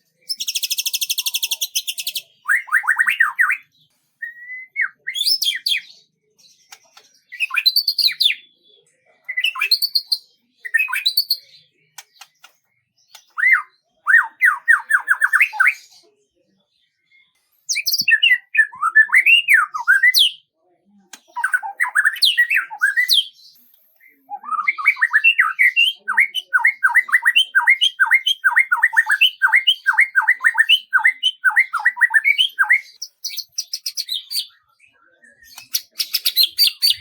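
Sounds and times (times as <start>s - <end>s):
songbird singing: 0.0s - 16.0s, 17.0s - 20.5s, 21.1s - 37.0s.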